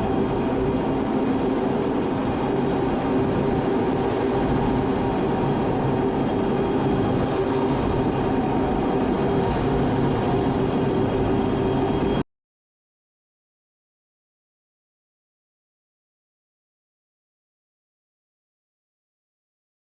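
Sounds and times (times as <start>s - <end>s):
engine drone: 0.0s - 12.2s.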